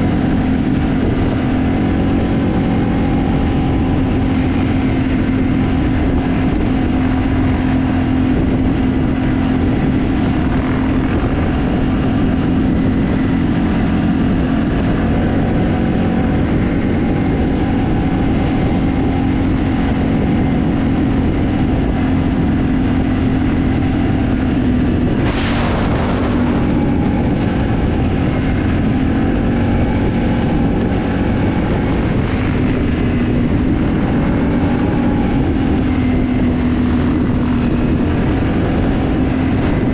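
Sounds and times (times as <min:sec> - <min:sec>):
off-road vehicle engine running: 0:00.0 - 0:39.9
brief rush of noise: 0:25.2 - 0:27.0.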